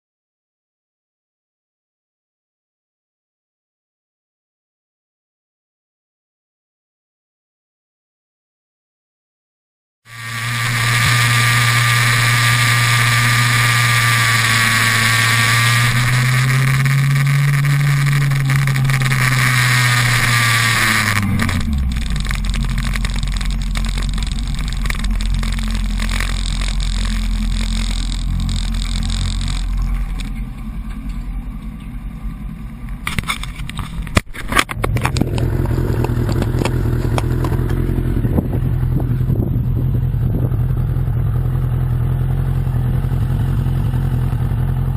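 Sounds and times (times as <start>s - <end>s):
loud rushing hiss: 10.1s - 29.8s
motorcycle engine running: 10.1s - 44.9s.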